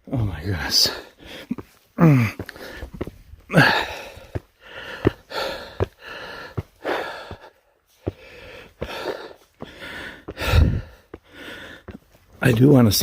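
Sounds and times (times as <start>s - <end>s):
man breathing hard: 0.6s - 12.4s.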